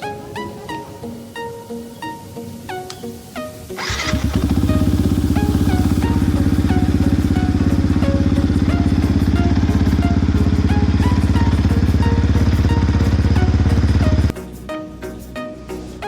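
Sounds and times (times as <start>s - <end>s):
motorcycle engine idling: 3.8s - 14.3s.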